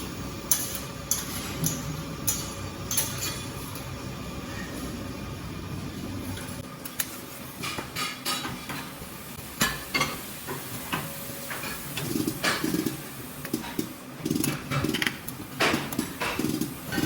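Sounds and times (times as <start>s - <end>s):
low machine hum: 0.0s - 6.9s.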